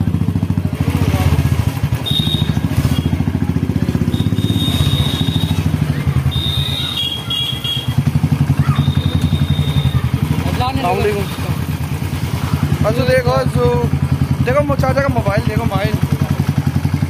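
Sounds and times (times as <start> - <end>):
motorcycle engine running: 0.0 - 17.0
thin high whistling tone: 6.3 - 7.8.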